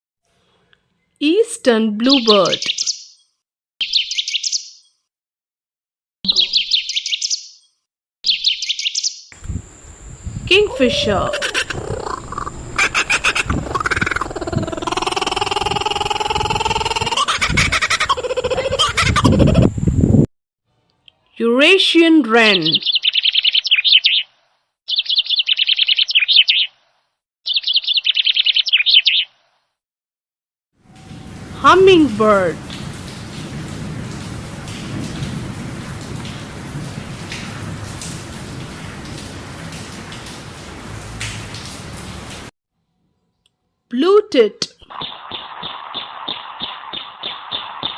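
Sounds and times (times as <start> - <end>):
wren trilling song: 2.1 - 5.0, 6.3 - 19.7, 22.6 - 26.8, 27.5 - 29.4, 44.8 - 47.9
bird singing warbled notes: 10.6 - 17.0.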